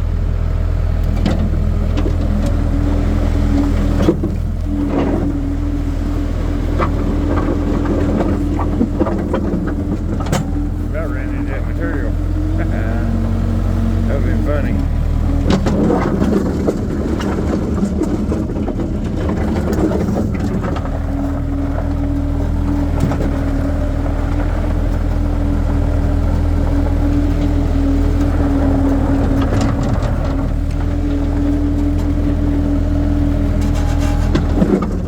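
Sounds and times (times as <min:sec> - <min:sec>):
loader engine running: 0:00.0 - 0:35.0
steady whine: 0:06.7 - 0:18.2.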